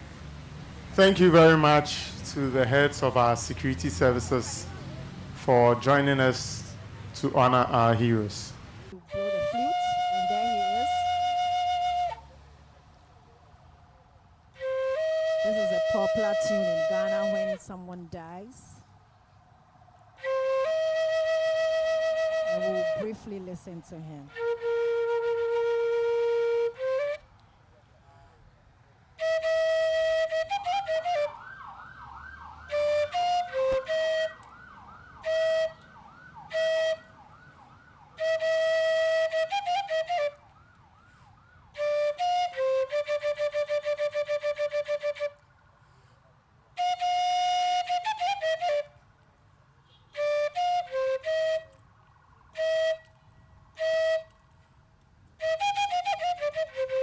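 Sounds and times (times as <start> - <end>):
bamboo flute playing: 8.9 - 12.4, 14.5 - 17.6, 20.2 - 23.3, 24.3 - 27.5, 29.2 - 31.6, 32.6 - 37.2, 38.1 - 40.8, 41.7 - 45.5, 46.7 - 49.0, 50.1 - 51.8, 52.5 - 54.6, 55.3 - 57.0.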